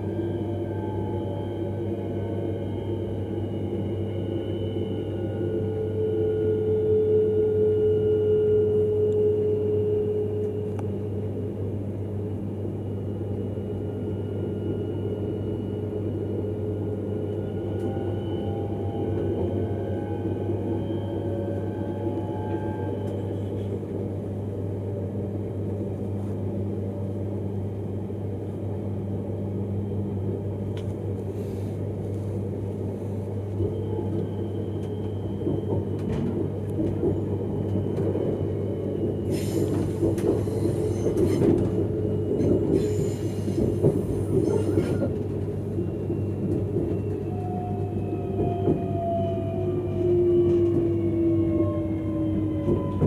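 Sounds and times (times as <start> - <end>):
electric train hum: 0.0 - 53.0
train wheels rumbling: 30.9 - 53.0.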